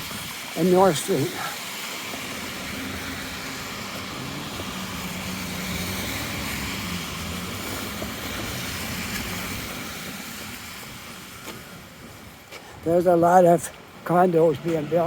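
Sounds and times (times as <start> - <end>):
passing vehicle engine drone: 2.0 - 11.4.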